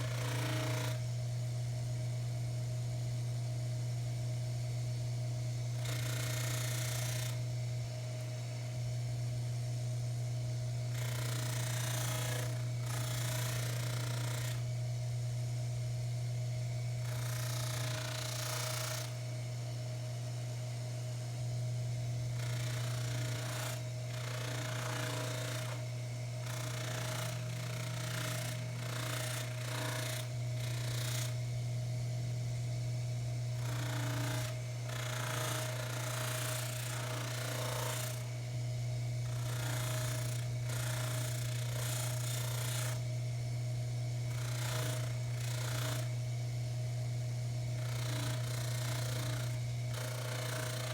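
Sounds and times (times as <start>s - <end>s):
lathe motor humming: 0.1s - 1.0s, 22.4s - 25.8s, 47.8s - 50.9s.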